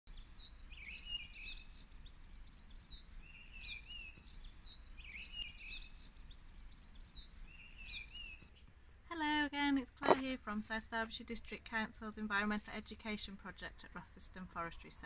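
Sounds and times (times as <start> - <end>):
songbird twittering: 0.1 - 8.6.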